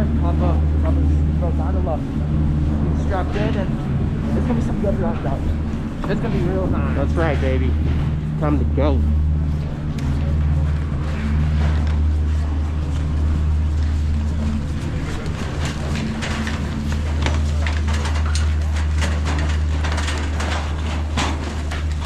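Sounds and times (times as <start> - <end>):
low machine hum: 0.0 - 22.0
rapid clicking and clattering: 2.6 - 22.0.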